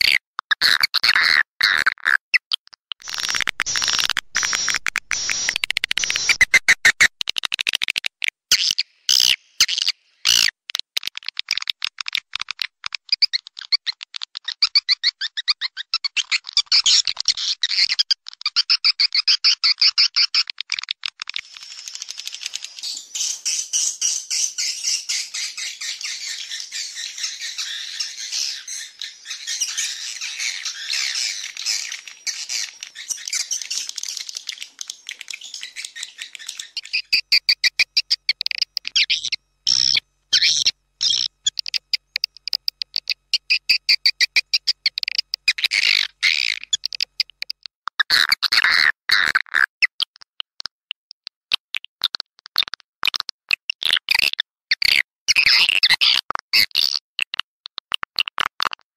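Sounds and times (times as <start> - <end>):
recorded swiftlet chirps: 3.0 - 7.4, 21.3 - 47.6.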